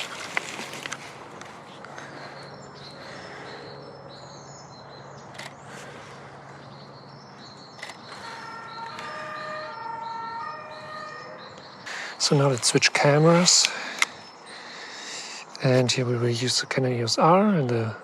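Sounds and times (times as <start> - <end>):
birds chirping: 0.0 - 18.0
whistled bird notes: 7.3 - 12.5.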